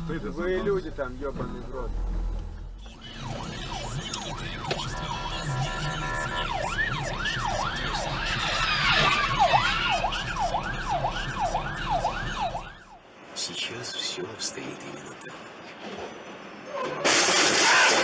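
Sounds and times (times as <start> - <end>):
emergency siren yelping: 2.8 - 13.0.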